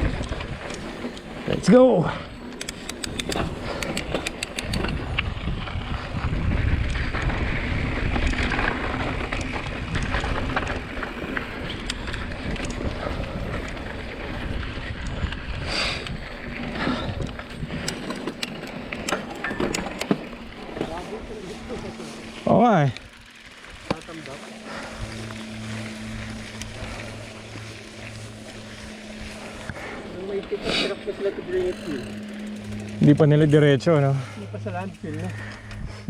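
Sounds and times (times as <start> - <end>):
wind rushing over microphone: 0.0 - 19.0
bike rattling and clicking: 0.0 - 36.0.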